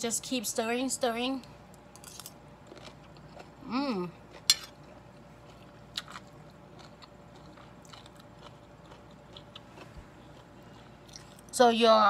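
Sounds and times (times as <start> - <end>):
chewing crunchy food: 2.0 - 11.6.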